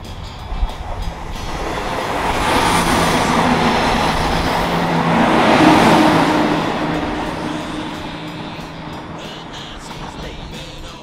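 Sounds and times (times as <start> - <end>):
low engine hum: 0.0 - 11.0
train wheels rushing on rails: 0.0 - 11.0.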